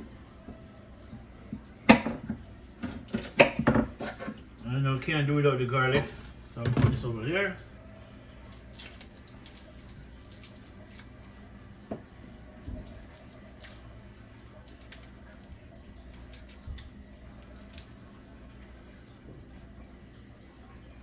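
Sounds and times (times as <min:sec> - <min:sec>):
garlic cloves clicking and crackling: 0:00.4 - 0:04.7, 0:08.3 - 0:11.5, 0:12.8 - 0:18.0.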